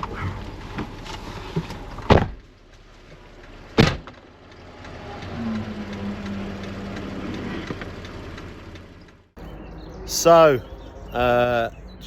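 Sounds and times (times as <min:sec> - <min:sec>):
car doors slamming: 0:01.6 - 0:02.4, 0:03.8 - 0:04.2.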